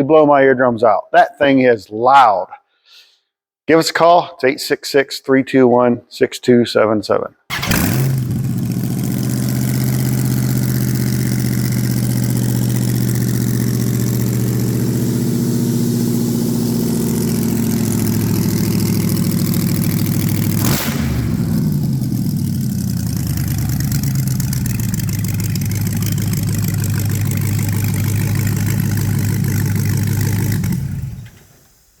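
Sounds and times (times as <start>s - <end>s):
car engine idling: 7.5s - 31.8s.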